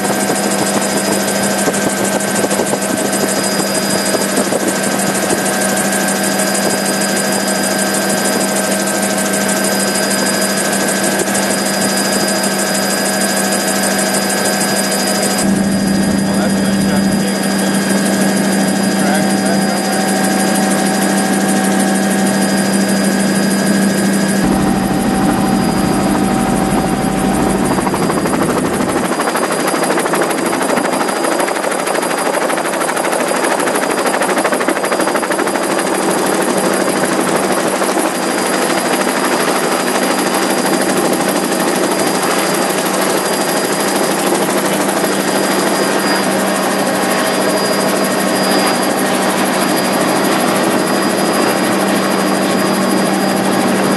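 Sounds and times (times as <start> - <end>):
helicopter engine and rotor noise: 0.0 - 53.9
deep low rumble: 24.4 - 29.2.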